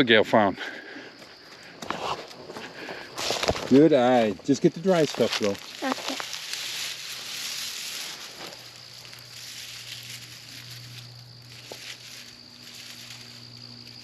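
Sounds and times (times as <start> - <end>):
dry leaves rustling and crunching: 4.7 - 14.0
twigs snapping: 5.0 - 14.0.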